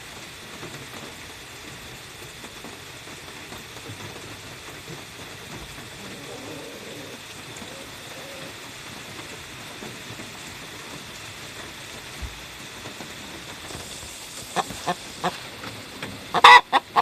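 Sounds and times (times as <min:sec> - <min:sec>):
steady background hiss: 0:00.0 - 0:17.0
chicken clucking: 0:14.4 - 0:15.5, 0:16.3 - 0:17.0.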